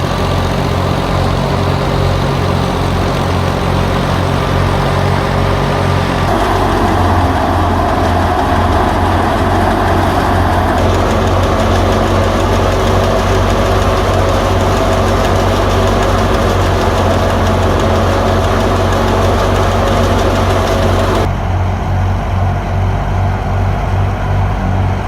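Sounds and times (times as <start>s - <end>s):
thresher whirring and rushing: 0.0s - 21.6s
tractor engine running: 0.0s - 25.0s.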